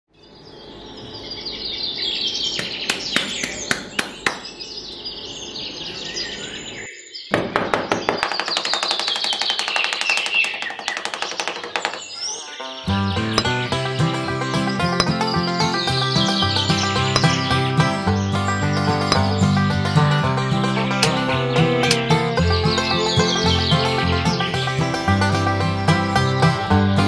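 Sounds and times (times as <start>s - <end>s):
birds chirping: 0.1s - 27.0s
music: 12.4s - 27.0s
sharp clicks: 13.4s - 13.8s, 14.9s - 15.5s, 17.1s - 17.9s, 21.0s - 21.3s.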